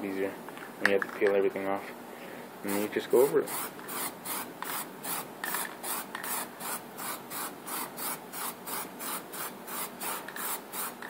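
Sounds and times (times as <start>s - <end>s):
rhythmic rubbing strokes: 2.6s - 11.0s.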